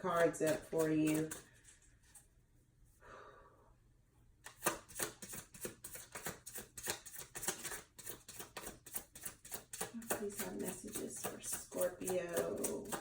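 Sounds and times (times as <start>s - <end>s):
cards being shuffled: 4.5s - 9.4s.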